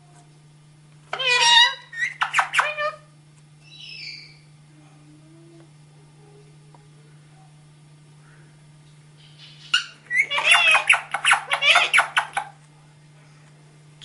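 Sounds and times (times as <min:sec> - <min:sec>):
parrot chattering: 0:01.1 - 0:03.1, 0:09.2 - 0:12.5.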